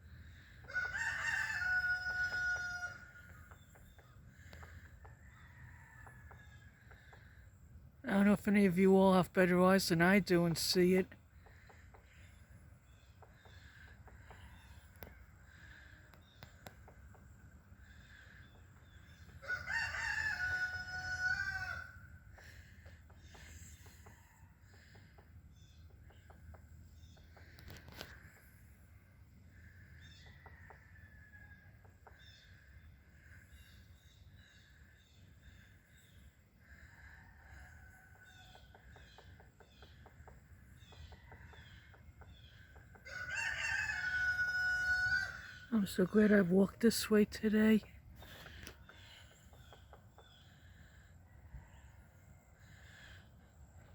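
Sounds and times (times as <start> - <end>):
rooster crowing: 0.6 - 3.2, 19.4 - 22.0, 43.0 - 45.5
woodpecker pecking at wood: 11.3 - 19.6, 22.3 - 28.7, 38.1 - 43.5, 48.2 - 50.7
small bird chirping: 48.2 - 50.9.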